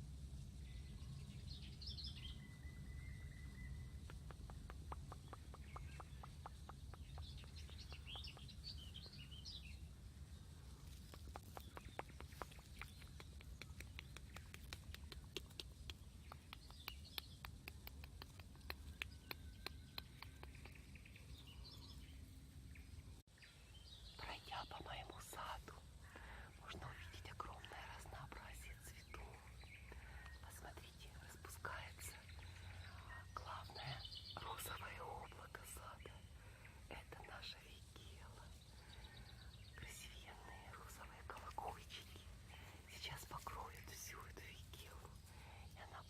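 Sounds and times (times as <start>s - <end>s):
songbirds warbling: 0.6s - 46.0s
quick sharp clicks: 11.0s - 20.8s.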